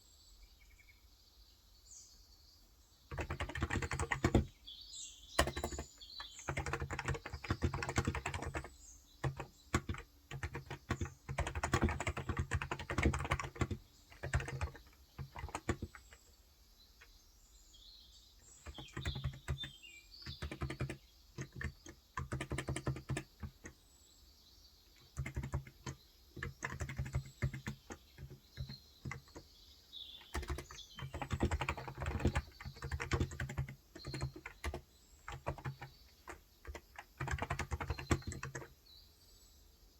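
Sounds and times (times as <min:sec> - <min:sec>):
faint birds chirping: 0:00.0 - 0:39.9
keyboard typing: 0:03.1 - 0:04.6, 0:05.4 - 0:16.2, 0:18.5 - 0:23.8, 0:25.0 - 0:29.5, 0:30.2 - 0:38.7.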